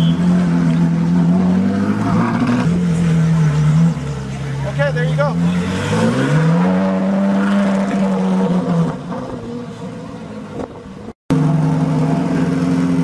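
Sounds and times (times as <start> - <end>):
race car engine revving: 0.0 - 9.8, 11.3 - 13.0
car engine idling: 9.6 - 13.0.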